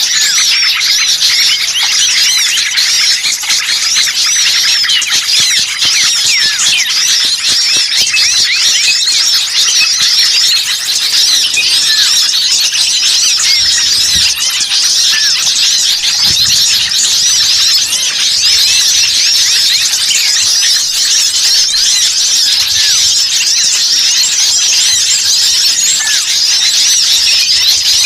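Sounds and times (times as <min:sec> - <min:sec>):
chorus of small songbirds chattering: 0:00.0 - 0:28.0.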